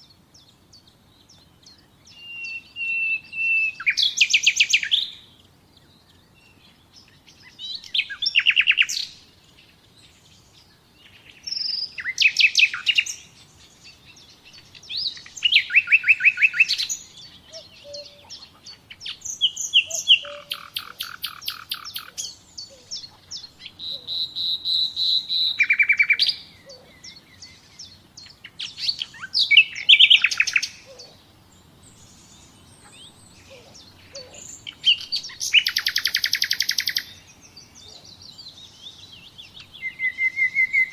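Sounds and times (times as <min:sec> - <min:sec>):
songbird singing high notes: 0:01.7 - 0:05.2, 0:14.7 - 0:31.2, 0:31.9 - 0:40.9.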